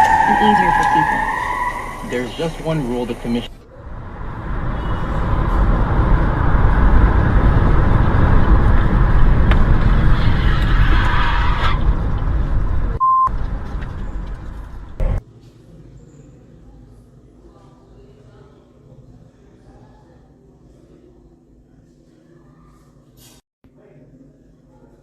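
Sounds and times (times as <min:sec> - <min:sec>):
car road and wind rumble: 0:00.0 - 0:15.2.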